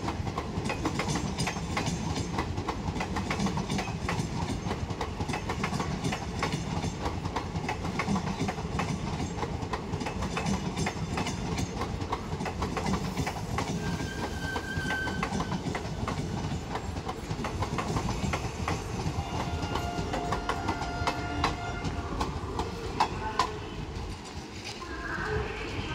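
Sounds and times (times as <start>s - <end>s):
clickety-clack over rail joints: 0.0s - 24.8s
train wheels rumbling on rail: 0.0s - 25.9s
high wheel squealing: 13.7s - 15.8s.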